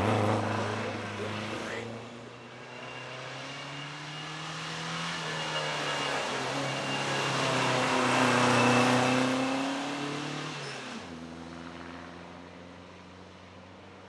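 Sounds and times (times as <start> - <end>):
racing car engine accelerating: 0.0 - 2.2, 2.8 - 11.2.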